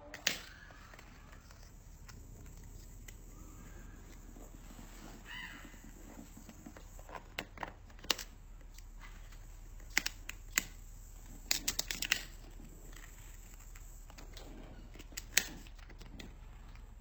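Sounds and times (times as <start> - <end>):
parrot call: 0.0 - 6.9
beak cracking nut shell: 0.1 - 16.9.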